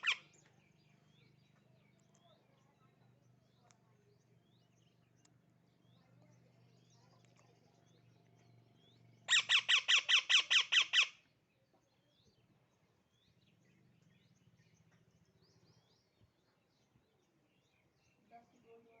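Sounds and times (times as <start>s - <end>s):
parrot squawking: 0.0s - 0.2s, 9.3s - 11.1s
small birds chirping: 0.0s - 19.0s.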